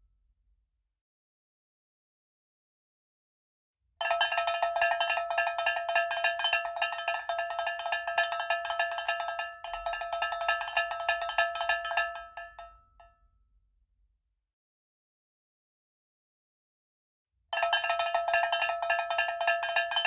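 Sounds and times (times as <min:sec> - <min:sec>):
rapid metallic bell percussion: 0:04.1 - 0:12.7, 0:17.6 - 0:20.0.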